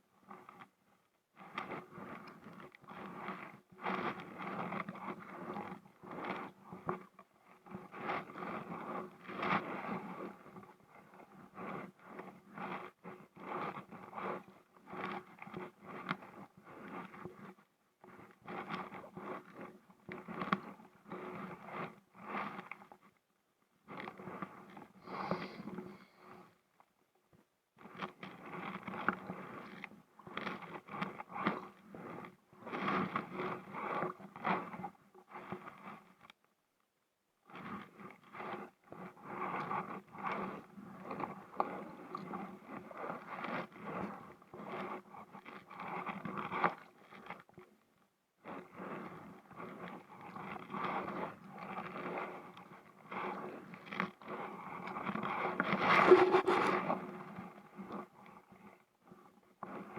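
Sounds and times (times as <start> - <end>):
scraping against kayak: 55.6 - 57.1
kayak paddle strokes: 55.8 - 56.9.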